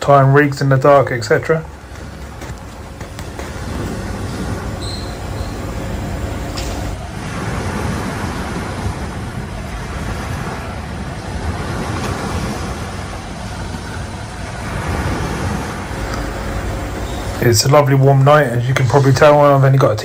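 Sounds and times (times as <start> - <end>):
rushing wind: 0.0 - 20.0
sea noise: 0.0 - 20.0.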